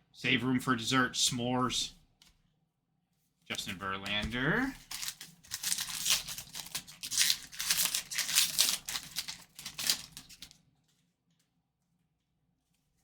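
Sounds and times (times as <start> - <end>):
wrapper crinkling and tearing: 4.6 - 10.6.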